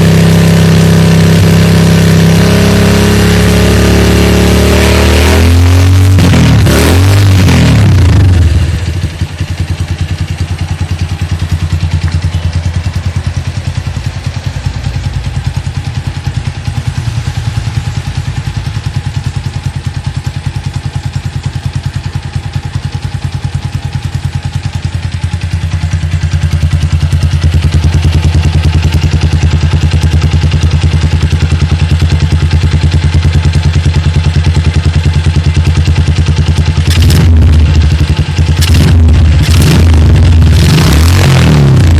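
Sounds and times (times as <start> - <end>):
motorcycle exhaust running: 0.0 - 41.9.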